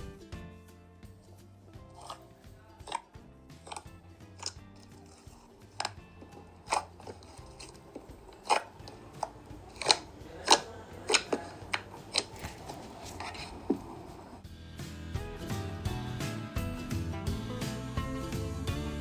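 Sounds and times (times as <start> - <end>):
quiet background music: 0.0 - 19.0.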